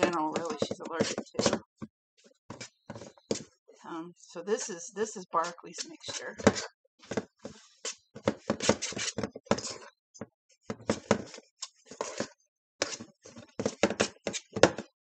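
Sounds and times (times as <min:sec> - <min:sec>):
fork scraping a bowl: 0:00.0 - 0:01.6, 0:05.4 - 0:06.7, 0:07.5 - 0:10.0, 0:10.8 - 0:14.6.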